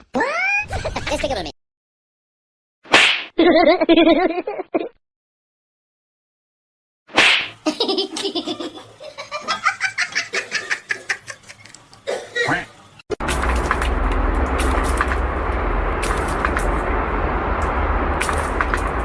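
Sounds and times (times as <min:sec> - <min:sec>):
person laughing: 0:03.4 - 0:04.9, 0:07.6 - 0:11.8.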